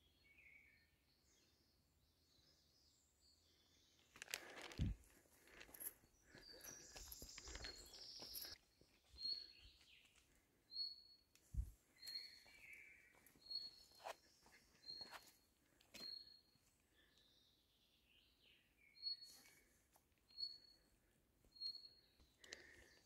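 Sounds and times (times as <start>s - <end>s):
bird chirping: 5.8s - 11.3s, 11.9s - 23.0s.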